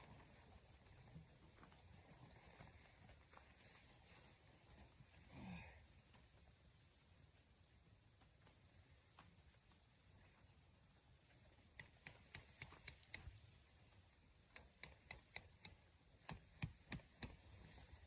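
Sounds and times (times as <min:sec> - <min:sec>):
sharp clicks: 0:11.8 - 0:13.3, 0:14.5 - 0:17.4.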